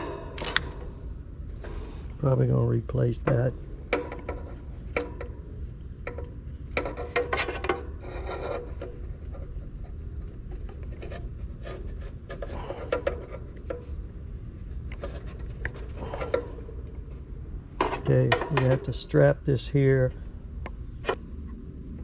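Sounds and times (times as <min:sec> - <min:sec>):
steady low hum: 0:00.0 - 0:22.0
tools rubbing and scraping: 0:03.9 - 0:05.3, 0:06.8 - 0:19.0.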